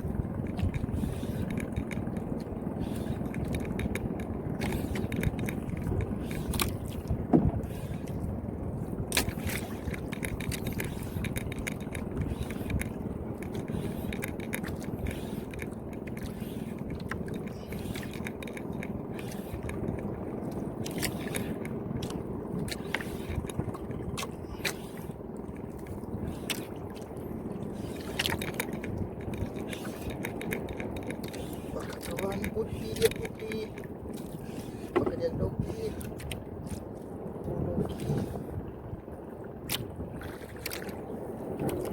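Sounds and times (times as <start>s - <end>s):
fishing reel cranking rumble: 0.0s - 6.8s
reel clicks: 0.0s - 36.8s, 39.6s - 41.9s.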